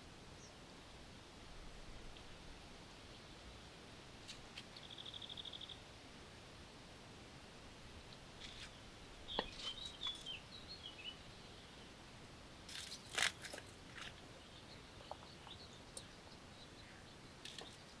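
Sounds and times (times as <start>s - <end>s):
bird chirping: 4.7s - 5.8s, 8.4s - 12.0s, 14.3s - 18.0s
crackling crunch: 12.7s - 14.3s.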